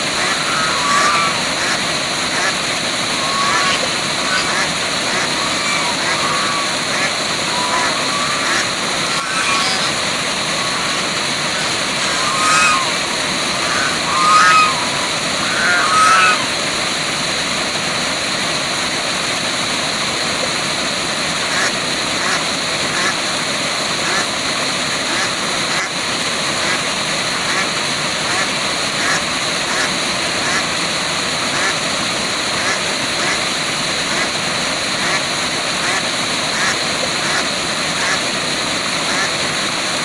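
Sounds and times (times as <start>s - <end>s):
waterfall rushing: 0.0s - 40.0s
short bird calls: 0.1s - 16.6s.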